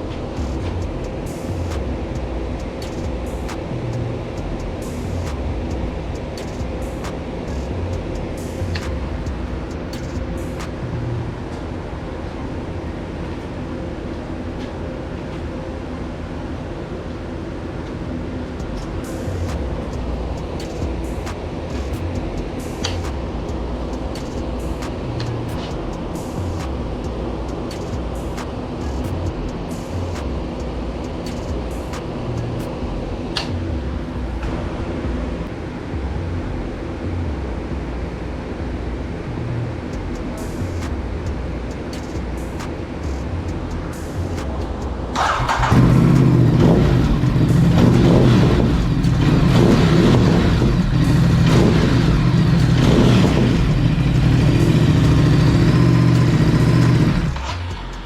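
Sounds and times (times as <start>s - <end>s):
motorcycle engine idling: 40.0s - 58.0s.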